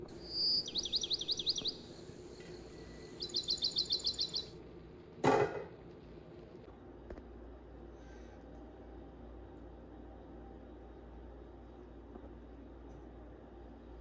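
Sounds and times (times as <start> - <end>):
low steady background hum: 0.0 - 14.0
bird chirping trilled phrases: 0.2 - 4.5.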